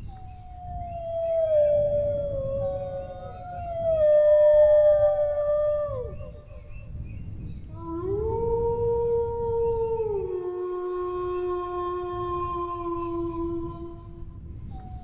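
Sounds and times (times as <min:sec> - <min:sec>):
dogs howling: 0:00.4 - 0:06.7.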